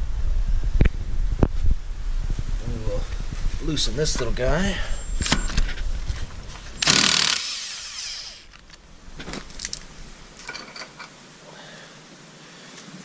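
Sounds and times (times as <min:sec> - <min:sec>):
impact gun loosening a bolt: 0:06.8 - 0:08.5.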